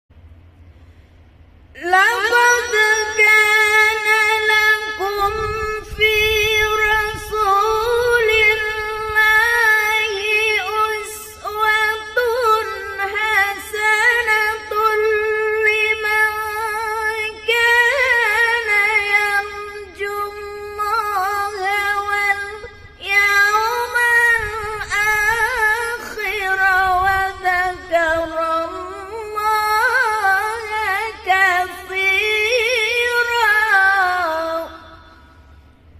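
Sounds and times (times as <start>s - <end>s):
woman reciting melodically: 1.7s - 35.7s.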